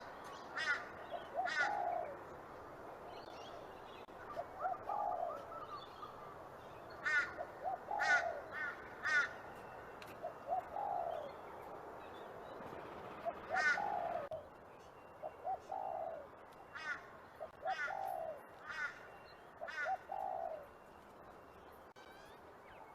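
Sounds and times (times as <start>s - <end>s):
dove cooing: 0.6s - 2.3s, 4.1s - 6.4s, 7.0s - 9.4s, 10.2s - 11.4s, 13.2s - 14.4s, 15.2s - 19.0s, 19.6s - 20.8s.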